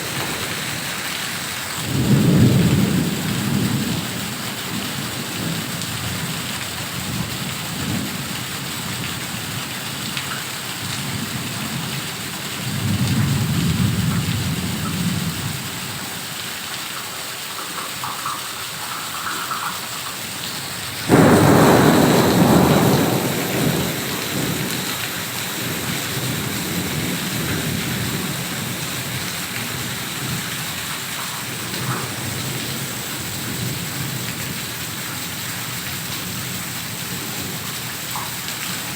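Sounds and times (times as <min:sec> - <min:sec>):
thunder rumbling: 0:00.0 - 0:05.6, 0:21.1 - 0:30.5
heavy rain: 0:00.0 - 0:38.9.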